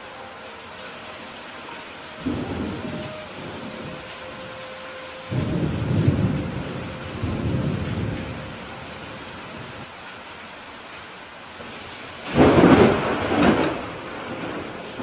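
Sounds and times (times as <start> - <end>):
steady rain: 0.0 - 15.0
thunder rumbling: 2.2 - 4.6, 5.2 - 9.9, 12.2 - 15.0.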